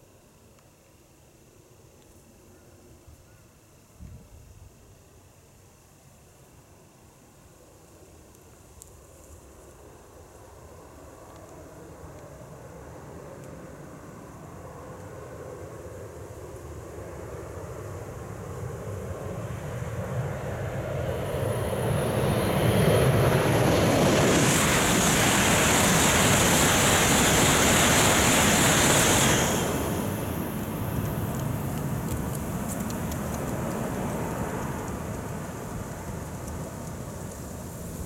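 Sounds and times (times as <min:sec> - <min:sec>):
high-speed train passing: 0:14.0 - 0:38.0.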